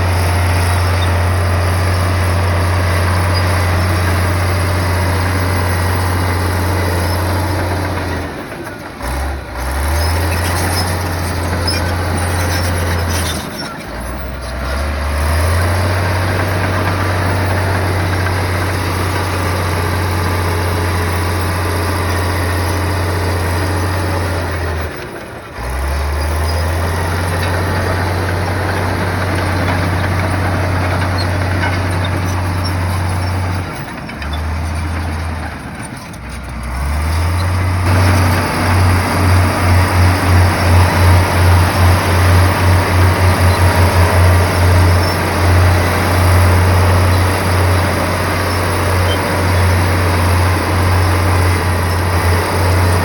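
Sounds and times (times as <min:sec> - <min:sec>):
bulldozer diesel engine drone: 0:00.0 - 0:53.0.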